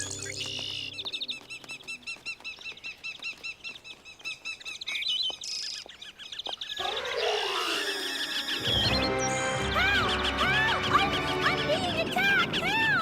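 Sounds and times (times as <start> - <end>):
wings flapping: 0.0 - 6.0
small birds chirping: 0.0 - 13.0.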